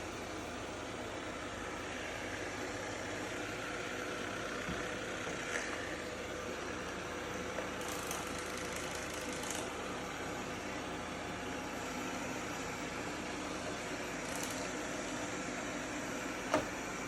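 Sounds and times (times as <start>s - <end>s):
robot vacuum fan hiss: 7.7s - 17.0s.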